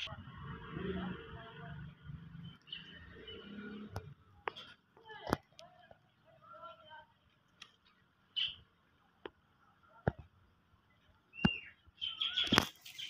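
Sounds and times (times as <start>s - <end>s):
birds chirping: 0.0s - 4.8s, 7.6s - 9.2s, 10.2s - 13.0s.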